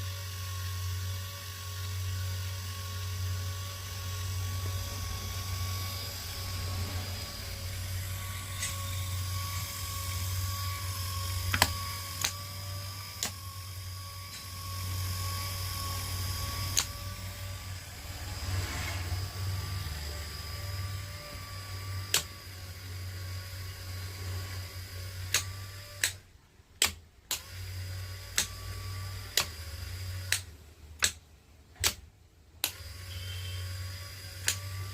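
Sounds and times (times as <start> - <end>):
compressor clutch humming: 3.2 - 22.8
sharp mechanical clicks: 8.5 - 17.2, 22.0 - 22.5, 24.8 - 34.9.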